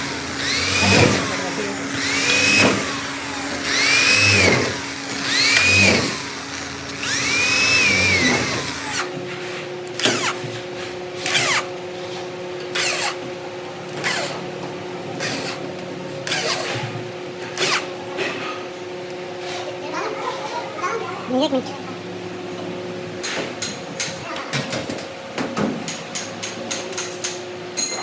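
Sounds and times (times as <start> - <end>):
power tool whining in bursts: 0.0 - 9.2, 9.9 - 10.4
steady machine hum: 0.0 - 12.7.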